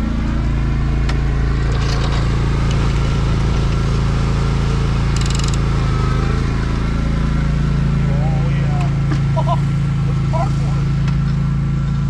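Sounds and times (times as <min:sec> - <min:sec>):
mower engine running: 0:00.0 - 0:12.0
rapid rattle: 0:01.5 - 0:04.1, 0:05.0 - 0:05.7.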